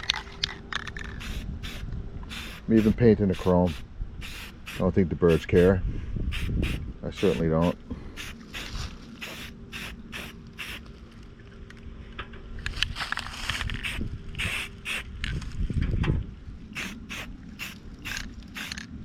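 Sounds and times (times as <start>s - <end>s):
spray paint can hissing: 0.8s - 5.6s, 6.3s - 10.9s, 13.8s - 15.1s, 16.8s - 18.9s.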